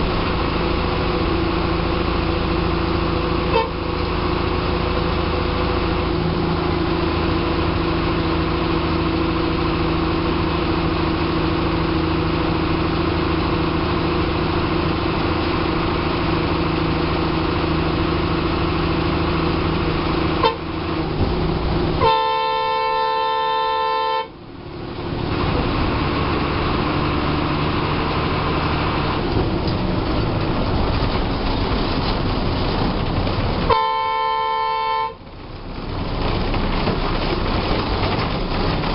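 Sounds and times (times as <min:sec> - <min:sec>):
bus diesel engine running: 0:00.0 - 0:38.9
bus horn: 0:03.4 - 0:04.0, 0:20.2 - 0:21.0, 0:21.9 - 0:24.4, 0:33.7 - 0:35.2.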